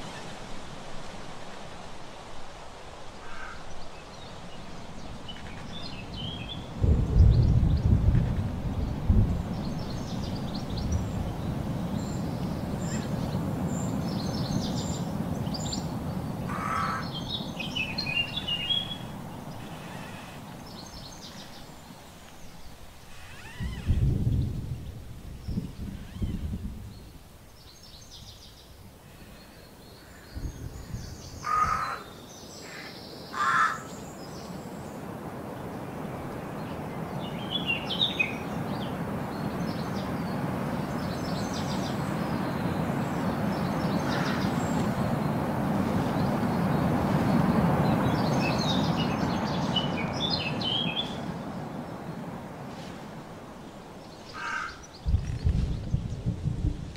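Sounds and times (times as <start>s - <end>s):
bird cawing: 3.2s - 3.8s, 16.4s - 17.3s, 18.3s - 20.7s, 31.4s - 34.0s, 44.0s - 44.8s, 54.3s - 55.0s.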